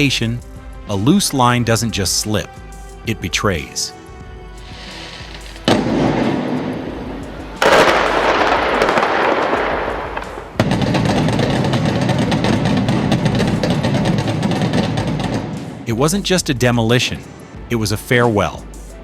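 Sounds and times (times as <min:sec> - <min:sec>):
demolition blast bangs: 0:04.7 - 0:15.9.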